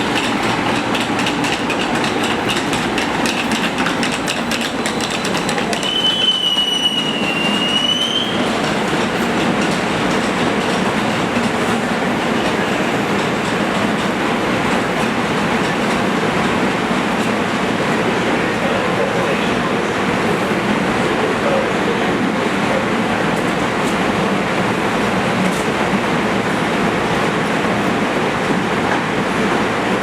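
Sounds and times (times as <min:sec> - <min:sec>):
train wheels rumbling on rail: 0:00.0 - 0:30.0
train wheels squealing: 0:04.8 - 0:08.6.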